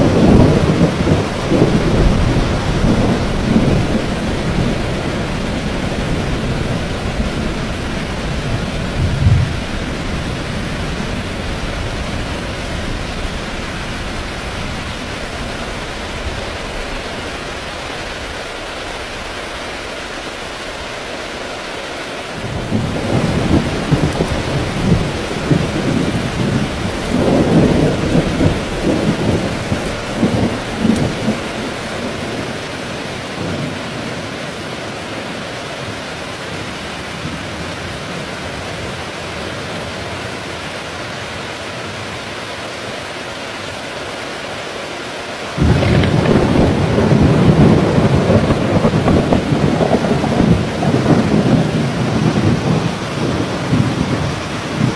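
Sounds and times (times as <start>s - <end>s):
thunder rumbling: 0.0s - 19.6s, 22.4s - 34.2s, 45.6s - 54.9s
heavy rain: 0.0s - 54.9s.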